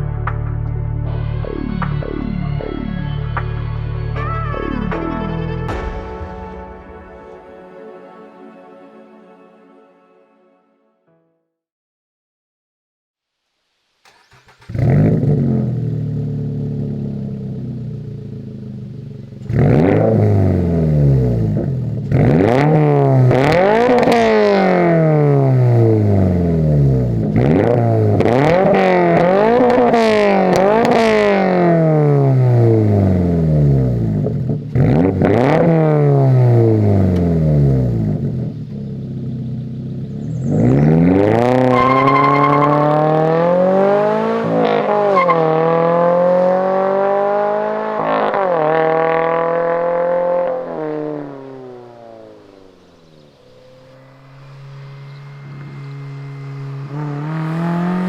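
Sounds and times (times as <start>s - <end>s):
car engine revving: 14.1s - 58.0s.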